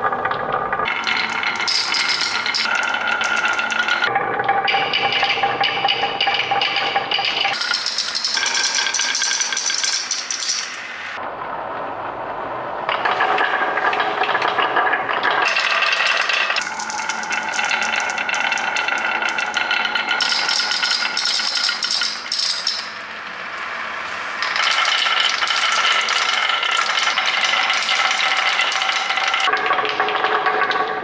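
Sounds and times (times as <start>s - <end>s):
marbles rattling along a track: 0.8s - 4.1s, 7.2s - 10.9s, 15.4s - 23.0s, 24.4s - 29.6s.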